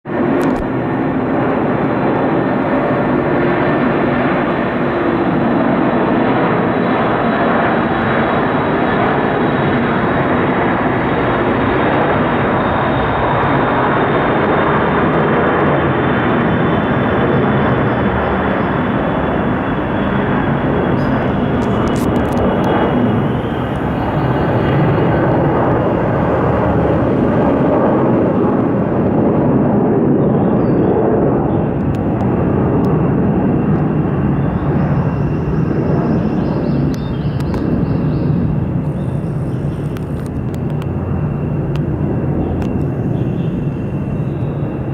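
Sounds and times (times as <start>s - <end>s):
jet taking off: 0.1s - 44.9s.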